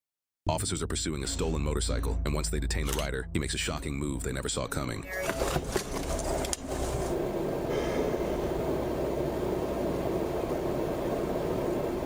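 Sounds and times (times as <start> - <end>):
steady rumbling noise: 5.5 - 12.0.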